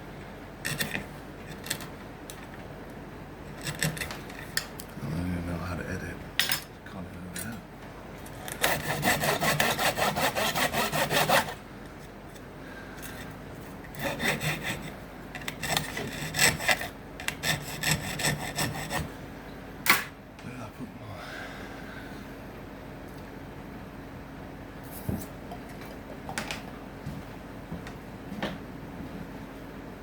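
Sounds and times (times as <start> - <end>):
hand saw cutting wood: 3.6 - 4.2, 8.5 - 11.6, 13.9 - 19.1.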